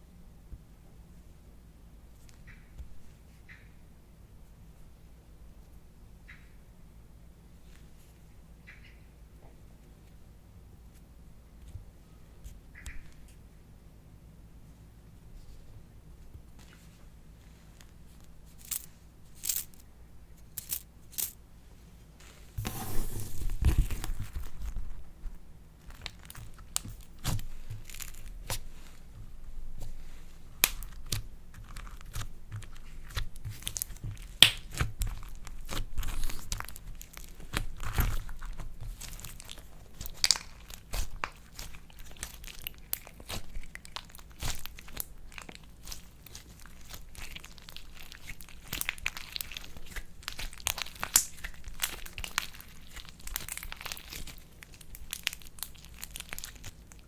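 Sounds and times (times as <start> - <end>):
slime crackling and popping: 30.6 - 57.0.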